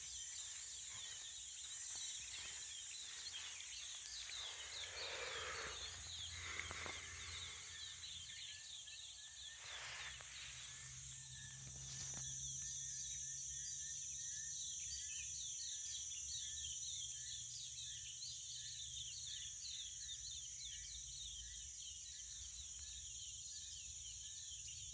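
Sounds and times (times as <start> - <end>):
small birds chirping: 0.0 - 12.7
insects humming: 0.0 - 17.4.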